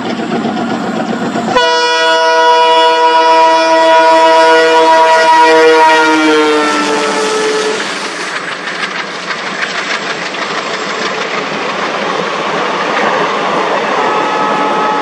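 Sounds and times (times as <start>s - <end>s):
locomotive air horn: 1.5s - 8.0s, 14.0s - 15.0s
wheels clicking over rail joints: 7.7s - 13.7s.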